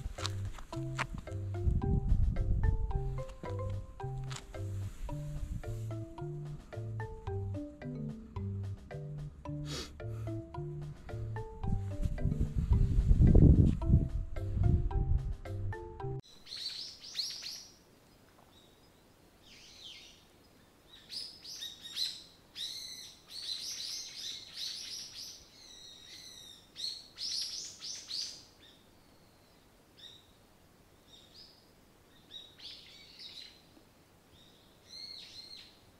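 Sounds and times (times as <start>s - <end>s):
small birds chirping: 16.3s - 35.9s.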